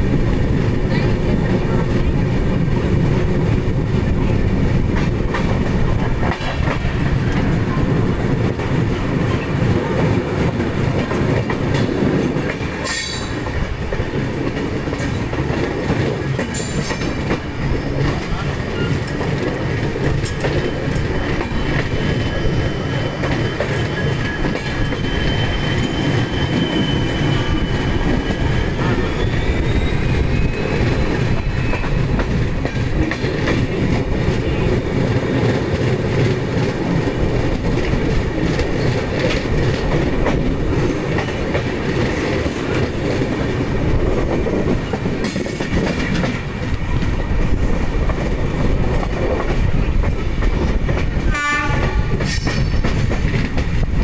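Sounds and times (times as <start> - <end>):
clickety-clack of rail joints: 0.0 - 54.0
train wheels rumbling on rail: 0.0 - 54.0
high wheel squeal: 20.6 - 32.1.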